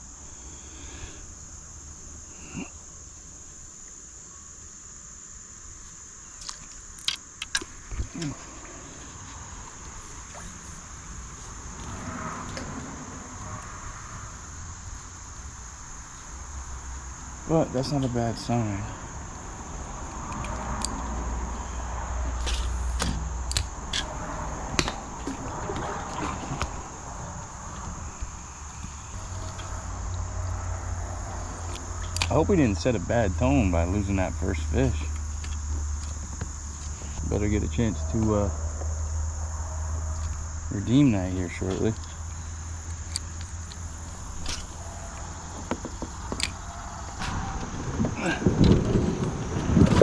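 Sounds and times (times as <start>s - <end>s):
crickets chirring: 0.0s - 50.0s
insect chorus drone: 0.0s - 50.0s
sharp clicks: 6.4s - 7.7s
low rumble: 18.9s - 48.2s.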